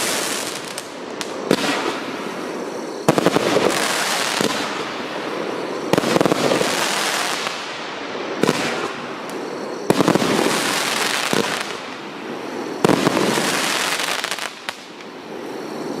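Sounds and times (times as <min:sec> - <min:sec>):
firework shots: 0:00.0 - 0:15.1.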